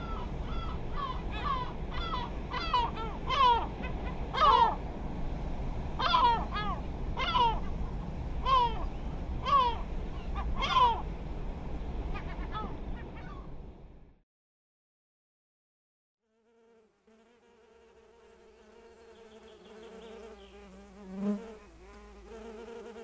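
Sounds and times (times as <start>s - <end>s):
birds harsh calls: 0.0s - 4.8s, 6.0s - 7.8s, 8.4s - 11.1s
low steady rumble: 0.0s - 14.2s.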